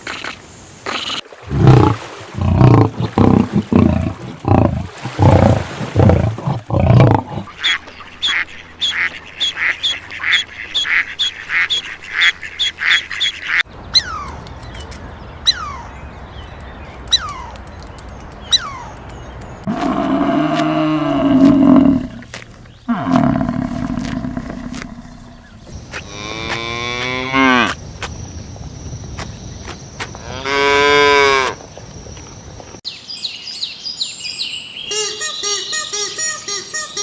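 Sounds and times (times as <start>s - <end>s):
falling bird chirps: 24.9s - 37.0s.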